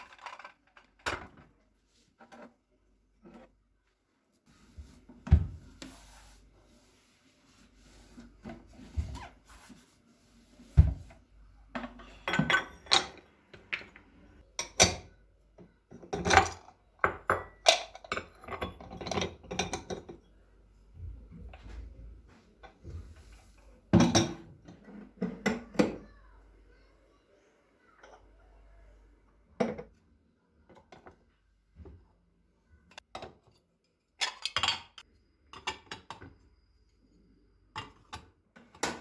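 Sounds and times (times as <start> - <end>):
kitchen items knocking and clattering: 0.0 - 3.6, 4.8 - 5.8, 10.7 - 20.3, 22.6 - 26.1, 29.6 - 30.0, 30.7 - 32.0, 32.9 - 36.5, 37.7 - 39.0.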